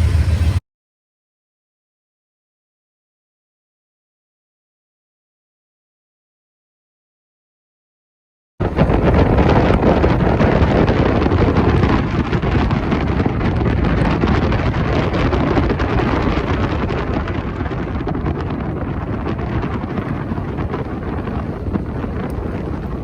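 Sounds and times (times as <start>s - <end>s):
train rumbling past: 0.0s - 0.6s, 8.6s - 23.0s
wind buffeting microphone: 8.6s - 23.0s.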